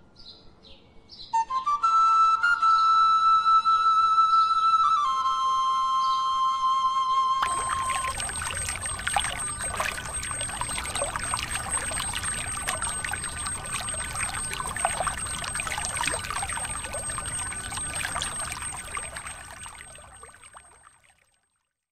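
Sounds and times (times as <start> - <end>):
water trickling into a pond: 7.4 - 21.5.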